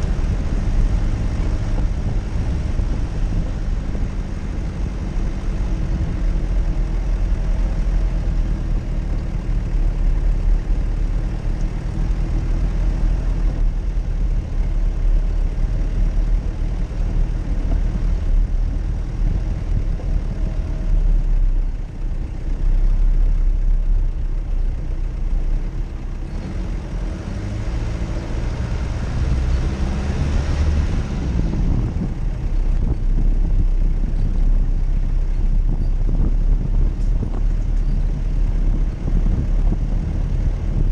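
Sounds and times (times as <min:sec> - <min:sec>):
off-road vehicle engine rumbling: 0:00.0 - 0:40.9.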